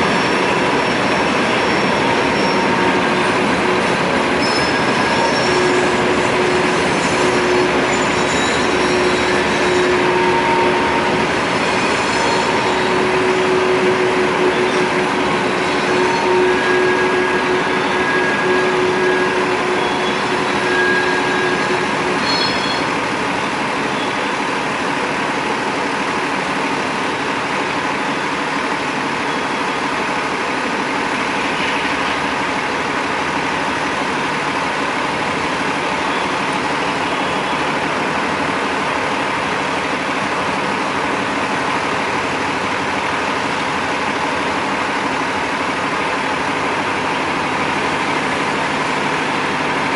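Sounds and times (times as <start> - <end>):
wheels squealing: 0.0 - 24.3
freight train rumbling past: 0.0 - 49.9.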